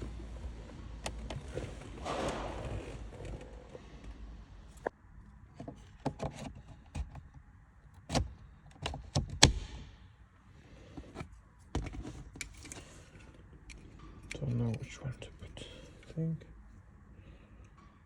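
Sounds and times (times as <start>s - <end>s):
parts clicking and knocking in car: 5.6s - 9.9s.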